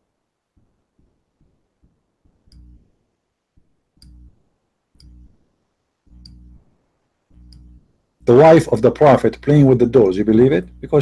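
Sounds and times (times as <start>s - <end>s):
faint sharp clicks: 2.2s - 2.9s, 3.6s - 4.4s, 5.0s - 5.4s, 6.1s - 6.7s, 7.3s - 7.9s
short low hum: 2.4s - 2.9s, 4.0s - 4.4s, 5.0s - 5.4s, 6.1s - 11.0s.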